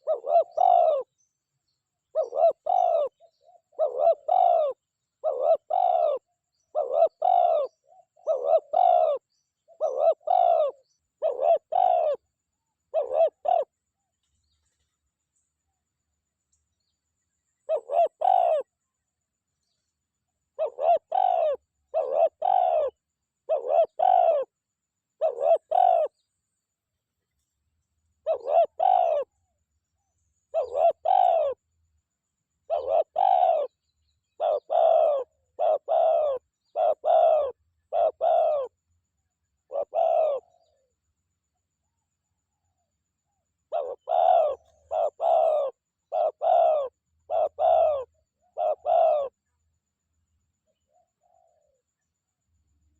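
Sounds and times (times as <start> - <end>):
dove cooing: 0.0 - 1.1, 2.1 - 12.3, 12.9 - 13.8, 17.6 - 18.7, 20.5 - 24.6, 25.2 - 26.2, 28.2 - 29.3, 30.5 - 31.6, 32.7 - 38.8, 39.6 - 40.9, 43.7 - 49.4, 50.9 - 51.8.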